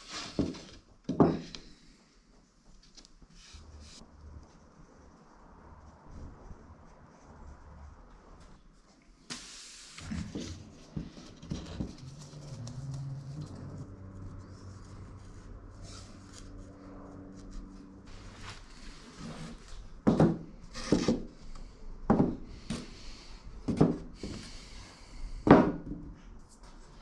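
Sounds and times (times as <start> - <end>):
rubbing and scraping on wood: 9.3 - 19.8
faint low hum: 10.0 - 19.9.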